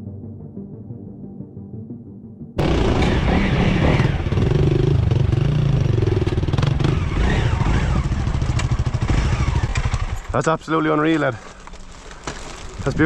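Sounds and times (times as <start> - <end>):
motorcycle engine running: 2.6 - 11.8.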